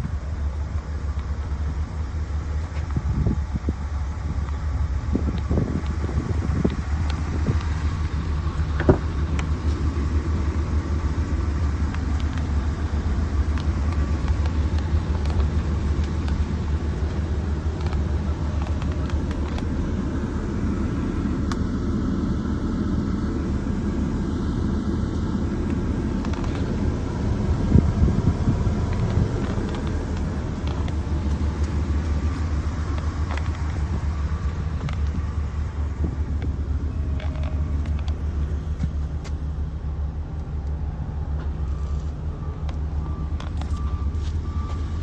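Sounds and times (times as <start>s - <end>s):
truck engine idling: 0.0s - 45.0s.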